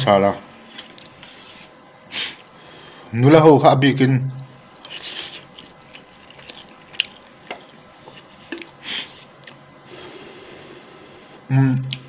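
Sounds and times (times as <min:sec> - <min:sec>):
chewing noodles: 0:04.8 - 0:08.8.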